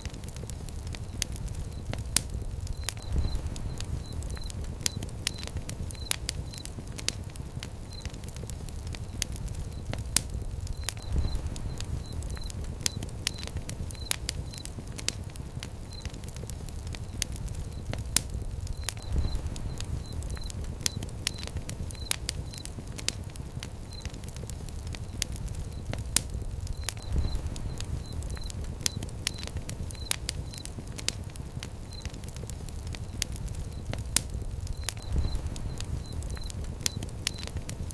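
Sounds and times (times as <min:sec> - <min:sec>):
fire crackling and popping: 0:00.0 - 0:37.9
low rumble of flames: 0:00.0 - 0:37.9
faint high chirps: 0:02.7 - 0:07.1, 0:10.7 - 0:14.8, 0:34.7 - 0:37.7.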